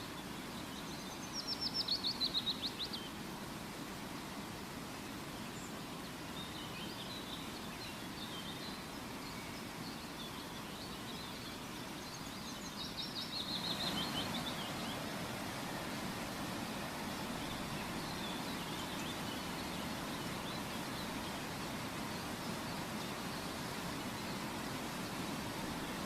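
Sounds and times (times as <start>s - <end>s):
steady background noise: 7.1s - 26.0s
birds chirping: 10.9s - 26.0s.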